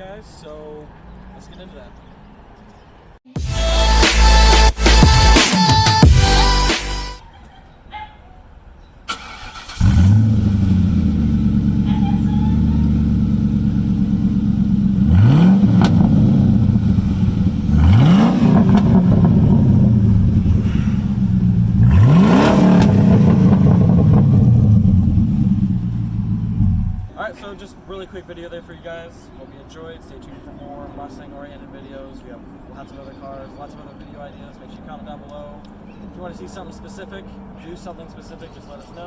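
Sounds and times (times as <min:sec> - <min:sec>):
car engine starting and idling: 0:00.0 - 0:39.0
engine revving: 0:09.1 - 0:27.2.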